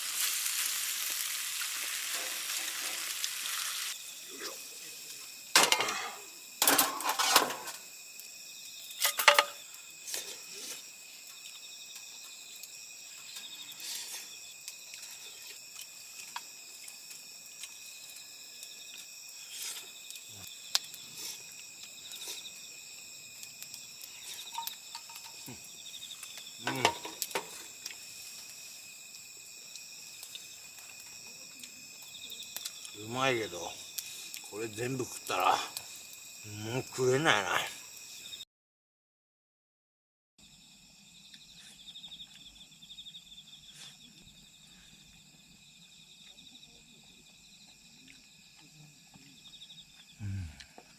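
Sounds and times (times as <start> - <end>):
crickets and insects chirping: 0.0 - 38.4, 40.4 - 50.9
utensils or dishes clinking: 9.0 - 9.6.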